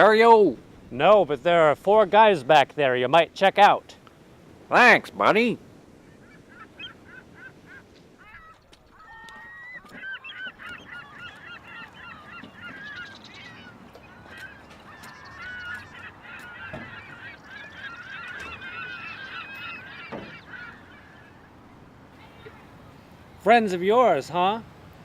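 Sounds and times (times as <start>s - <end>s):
birds honking: 4.5s - 25.0s.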